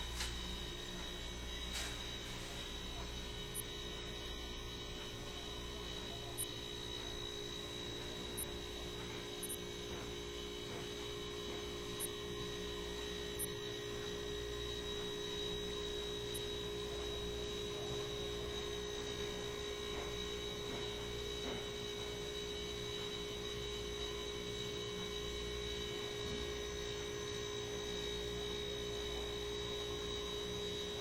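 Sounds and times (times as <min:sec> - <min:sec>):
electrical hum: 0:00.0 - 0:31.0.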